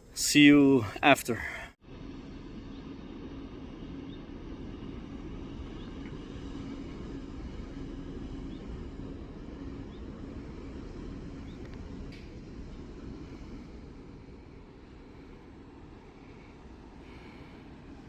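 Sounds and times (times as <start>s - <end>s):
low droning hum: 0.0s - 18.0s.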